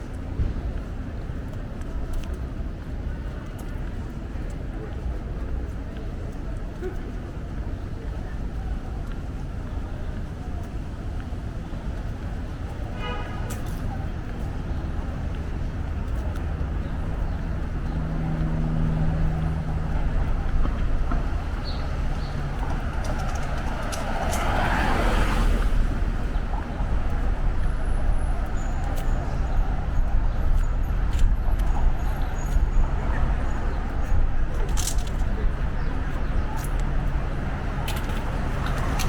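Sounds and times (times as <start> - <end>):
traffic rumble: 0.0 - 39.0
vehicle passing: 15.5 - 39.0.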